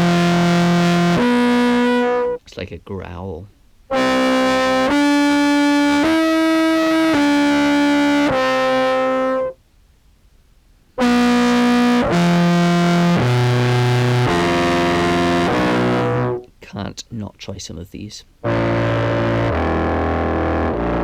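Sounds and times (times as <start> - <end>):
distorted clarinet notes: 0.0 - 2.6, 3.9 - 9.6, 11.0 - 16.5, 18.4 - 21.0.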